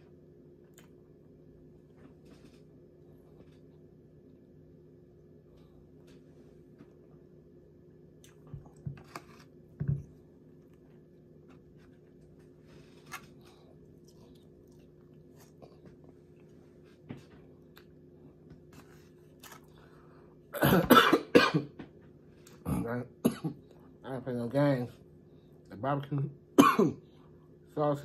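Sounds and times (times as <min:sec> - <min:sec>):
man chewing food: 0:00.0 - 0:07.3, 0:07.9 - 0:20.6
low steady hum: 0:00.0 - 0:28.0.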